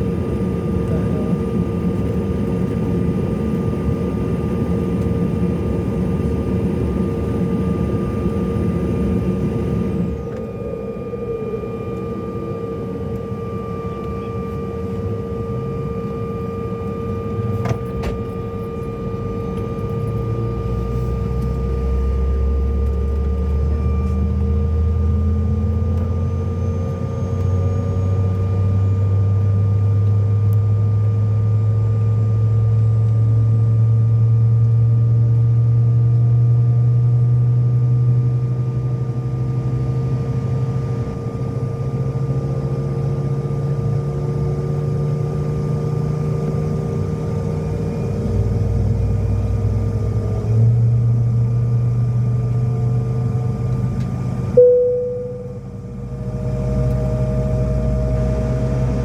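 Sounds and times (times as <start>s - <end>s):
jet cabin engine tones: 0.0s - 25.6s, 54.4s - 59.0s.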